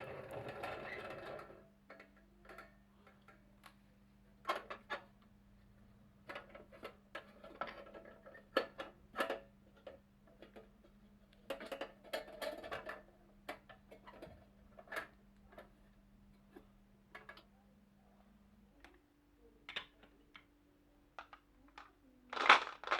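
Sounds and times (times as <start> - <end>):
marbles clacking on wooden run: 22.4 - 22.9.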